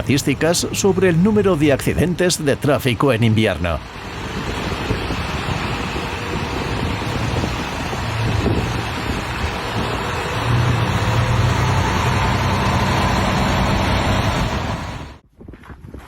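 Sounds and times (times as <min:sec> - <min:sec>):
vehicle engine hum: 0:03.8 - 0:15.2
loud rushing noise: 0:03.9 - 0:15.2.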